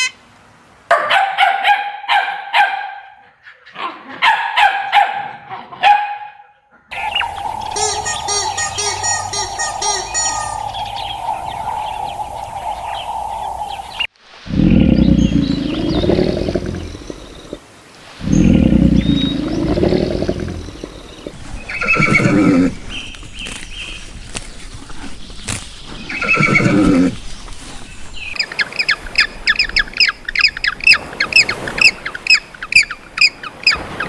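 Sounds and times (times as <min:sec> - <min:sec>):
horses neighing: 0:06.9 - 0:17.6, 0:18.2 - 0:23.6, 0:25.8 - 0:28.1.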